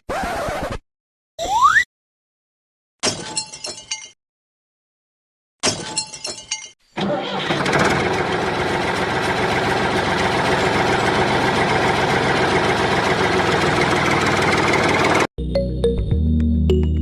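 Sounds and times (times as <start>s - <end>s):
engine running: 7.0s - 15.3s.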